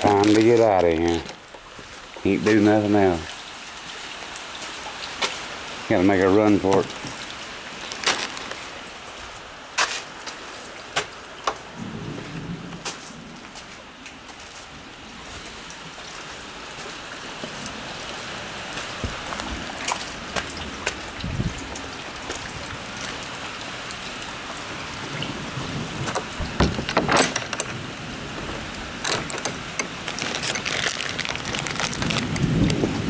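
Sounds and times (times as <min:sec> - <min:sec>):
heavy rain falling: 0:00.0 - 0:33.0
knocks and clacks of handling: 0:26.1 - 0:27.8, 0:29.0 - 0:32.2.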